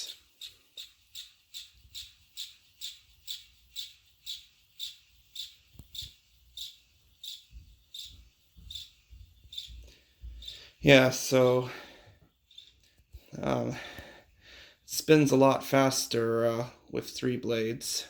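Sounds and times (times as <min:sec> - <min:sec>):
fan squeaking: 0:00.0 - 0:13.8.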